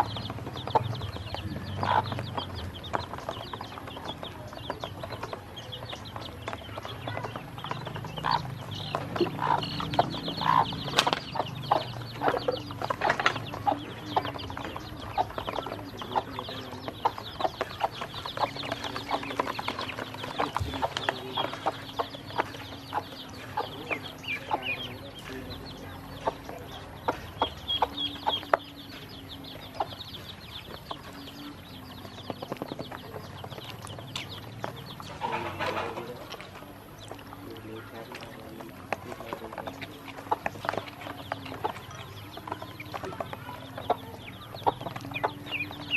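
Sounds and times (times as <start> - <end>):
clicks of dabbling at feed: 0.0 - 45.9
ducklings peeping: 0.0 - 45.9.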